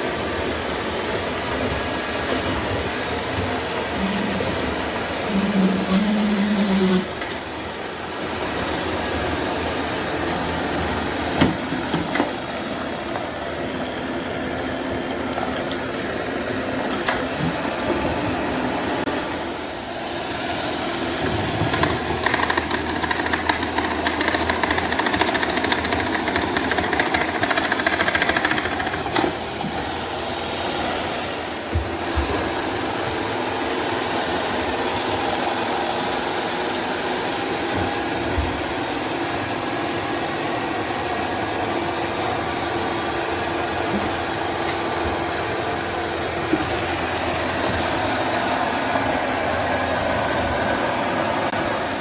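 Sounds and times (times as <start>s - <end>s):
robot vacuum motor and suction: 3.9s - 7.3s.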